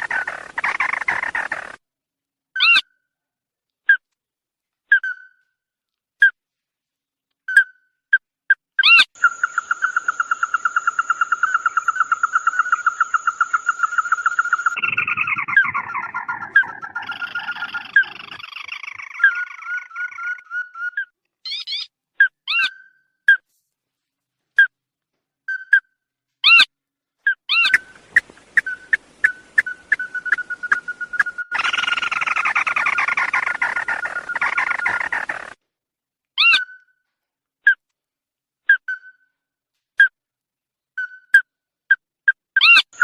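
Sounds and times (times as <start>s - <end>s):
bird trilling and chirping: 8.8s - 21.9s, 27.5s - 35.6s.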